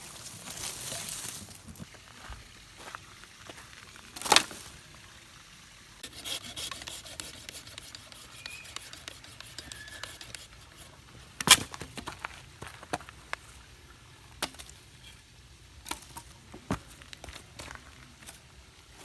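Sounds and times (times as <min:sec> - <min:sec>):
rubbing handling noises: 0:06.0 - 0:12.2.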